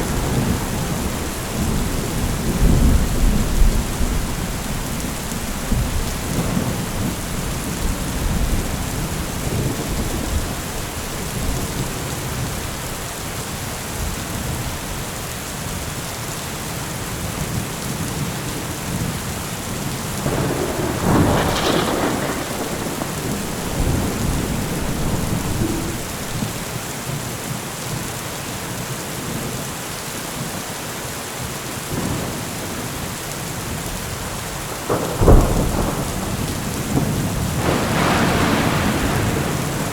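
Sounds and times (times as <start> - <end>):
loud thunderclap: 0.0 - 12.6, 20.2 - 26.8, 34.7 - 39.9
thunder rumbling: 0.0 - 13.0, 20.2 - 26.8, 34.3 - 39.9
steady rain: 0.0 - 39.9.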